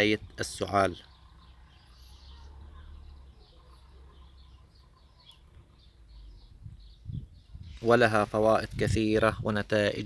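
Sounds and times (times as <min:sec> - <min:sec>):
faint bird chirps: 0:00.0 - 0:08.6.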